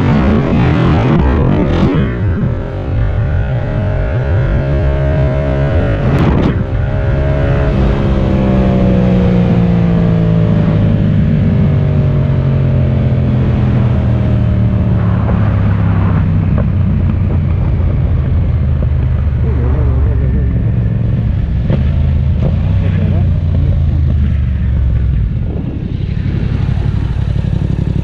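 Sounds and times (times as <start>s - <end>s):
motorcycle engine slowing down: 11.0s - 28.0s.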